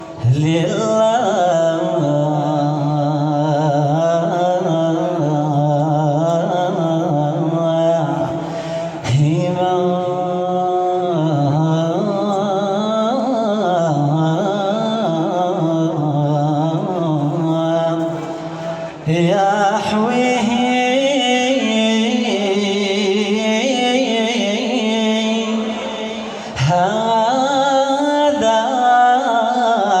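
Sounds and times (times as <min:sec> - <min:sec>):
man singing melismatic notes: 0:00.0 - 0:30.0.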